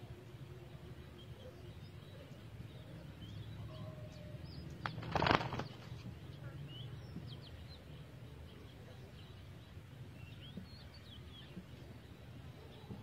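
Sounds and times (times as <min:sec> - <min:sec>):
small birds chirping: 0:00.0 - 0:13.0
bird wings fluttering: 0:04.8 - 0:06.1.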